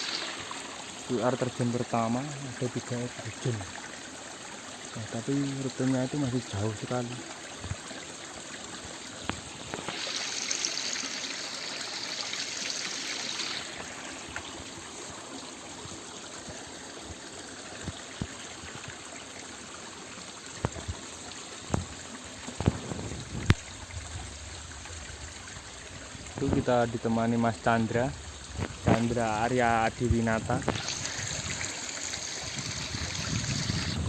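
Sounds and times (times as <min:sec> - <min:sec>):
stream trickling over rocks: 0:00.0 - 0:34.0.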